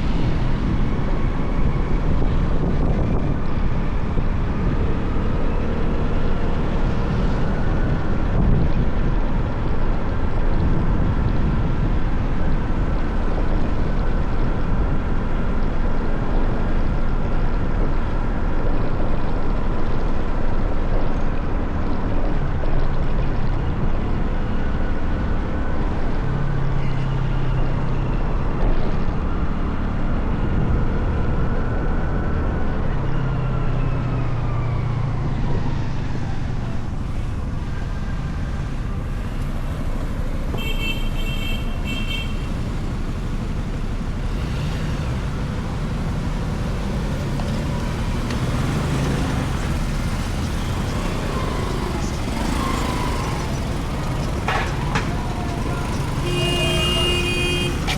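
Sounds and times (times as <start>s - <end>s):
road and traffic noise: 0.0s - 57.9s
motorcycle engine revving: 41.9s - 57.9s.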